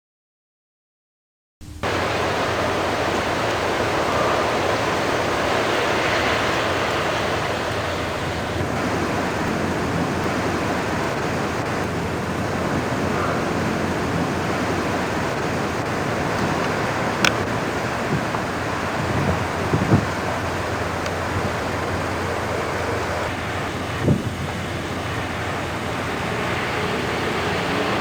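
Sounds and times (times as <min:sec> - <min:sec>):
strong wind gusting: 0:01.8 - 0:28.0
wind striking microphone: 0:01.8 - 0:28.0.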